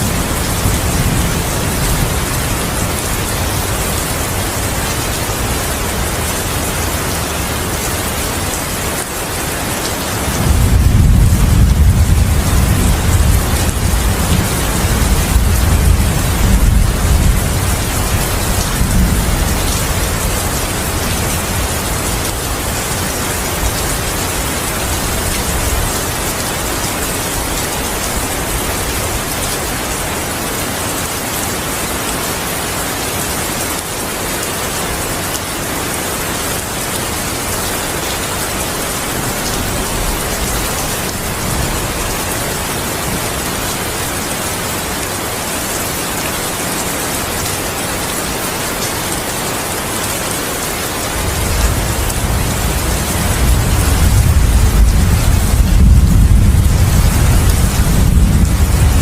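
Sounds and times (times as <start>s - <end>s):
heavy rain falling: 0.0s - 59.0s
thunder rumbling: 10.3s - 26.0s, 51.2s - 59.0s.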